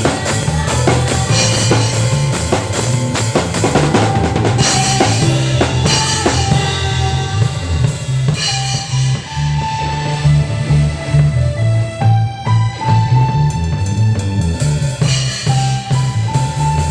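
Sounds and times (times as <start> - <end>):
bass line: 0.0 - 16.9
live band playing worship song: 0.0 - 16.9.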